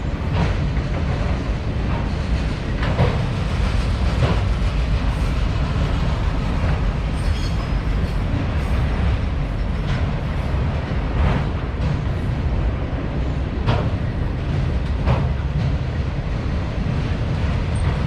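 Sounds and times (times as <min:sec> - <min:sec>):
freight train cars rumbling: 0:00.0 - 0:18.0
high wheel squeal: 0:07.2 - 0:07.9.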